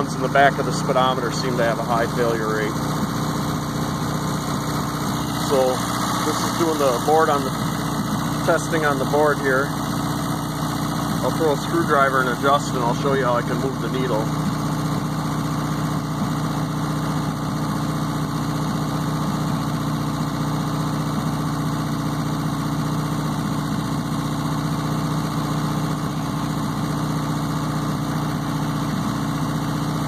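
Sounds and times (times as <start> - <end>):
engine humming steadily: 0.0 - 30.0.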